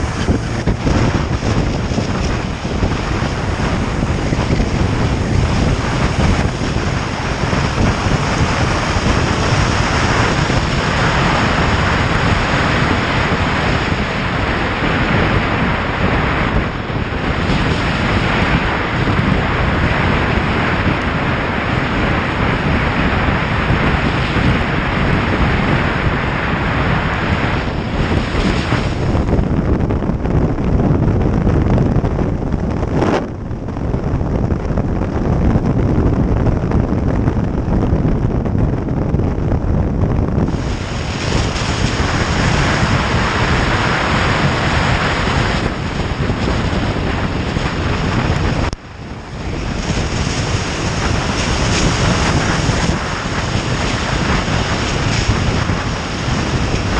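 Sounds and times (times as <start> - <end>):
motorcycle engine: 0.0 - 37.6
wind rushing over microphone: 0.0 - 56.9.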